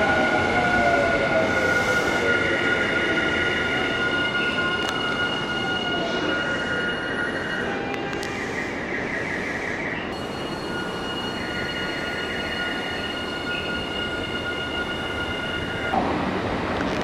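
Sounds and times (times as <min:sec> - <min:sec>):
high-pitched tones: 0:10.0 - 0:16.0
electric train running: 0:10.1 - 0:16.0.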